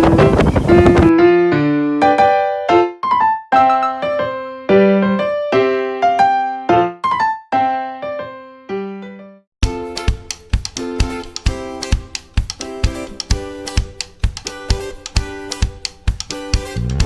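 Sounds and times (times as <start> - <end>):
electric piano chords: 16.5 - 17.0.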